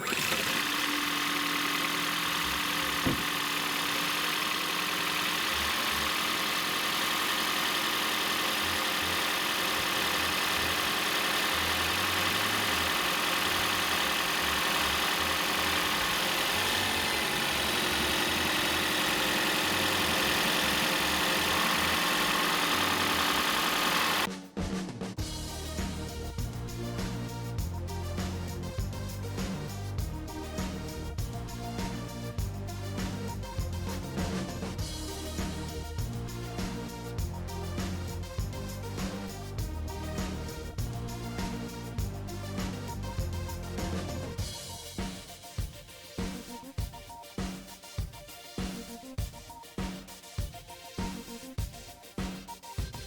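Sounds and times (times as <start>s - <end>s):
car engine idling: 0.0s - 24.3s.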